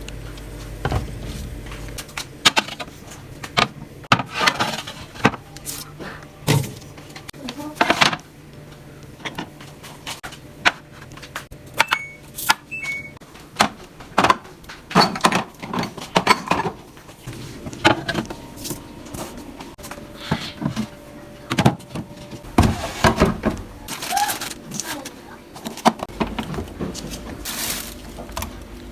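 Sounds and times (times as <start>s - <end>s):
short high beeps: 11.9s - 13.2s
containers knocking and clattering: 13.4s - 24.9s, 25.6s - 28.9s.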